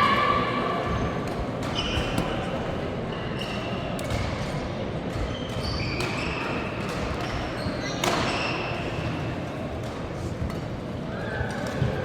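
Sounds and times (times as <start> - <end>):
shoe squeaks on court floor: 1.7 - 2.4, 5.2 - 9.1
racket hitting shuttlecock: 5.5 - 8.9.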